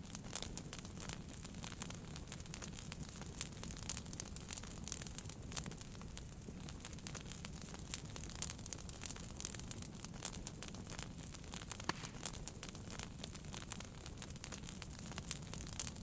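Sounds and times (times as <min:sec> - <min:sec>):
wood fire crackling and popping: 0:00.0 - 0:16.0
low rush of flame: 0:11.5 - 0:16.0.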